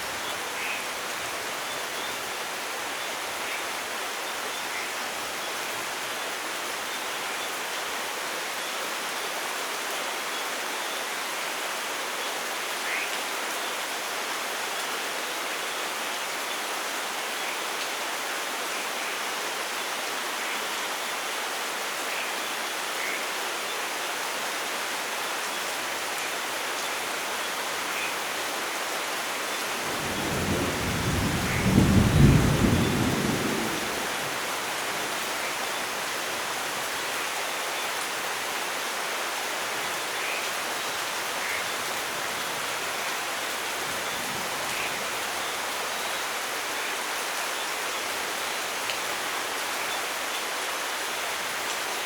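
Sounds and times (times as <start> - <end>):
steady light rain: 0.0 - 52.0
thunder rumble: 30.0 - 34.4.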